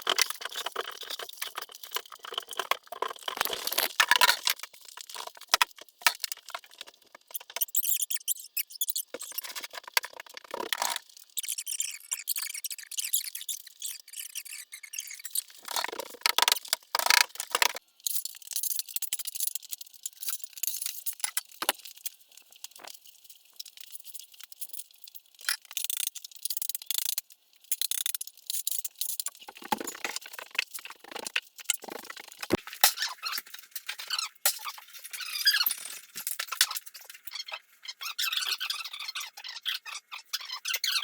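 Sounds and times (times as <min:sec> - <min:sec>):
ceramic shards scraping and clattering: 0:03.2 - 0:04.5.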